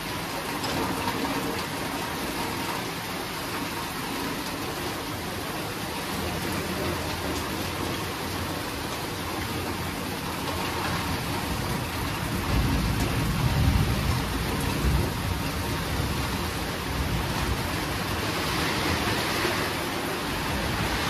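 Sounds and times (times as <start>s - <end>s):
heavy rainfall: 0.0s - 21.0s
low rumble of thunder: 11.4s - 19.1s.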